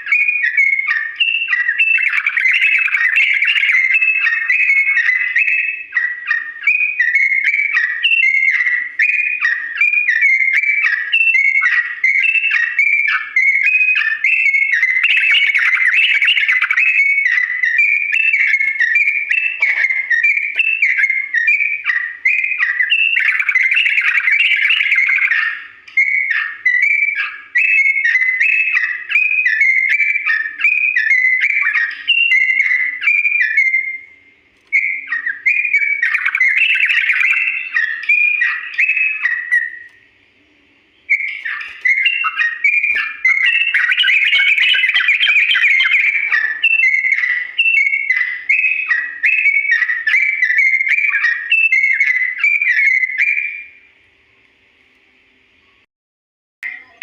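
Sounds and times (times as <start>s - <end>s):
bulbul singing chattering notes: 0.0s - 34.2s, 34.8s - 39.9s, 40.9s - 53.8s.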